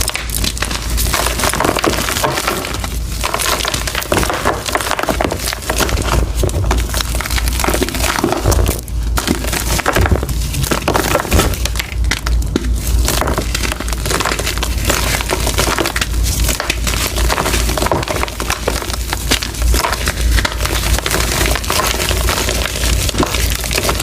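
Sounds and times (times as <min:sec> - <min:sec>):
chalk crunching and crackling: 0:00.0 - 0:24.0.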